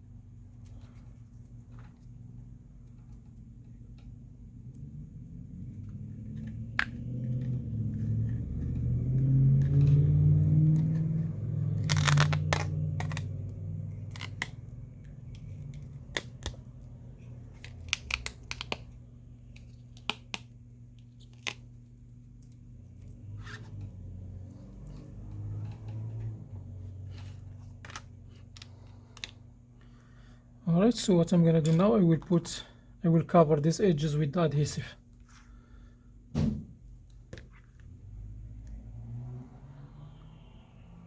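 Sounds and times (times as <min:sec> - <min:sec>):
adhesive strip peeling and scraping: 0:09.6 - 0:16.7, 0:17.5 - 0:18.9
low handling rumble: 0:23.0 - 0:28.8.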